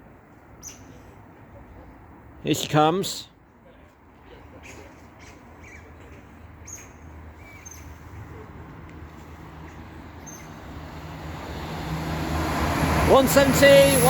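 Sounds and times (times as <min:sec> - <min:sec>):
bird chirps: 0:06.6 - 0:08.0, 0:10.2 - 0:10.7
diesel train engine drone: 0:08.1 - 0:14.0.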